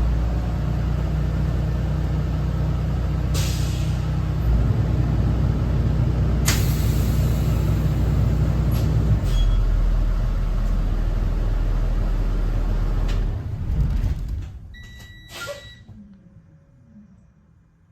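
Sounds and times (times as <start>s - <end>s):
diesel bus engine droning: 0.0s - 14.7s
short electronic beep: 14.8s - 15.9s.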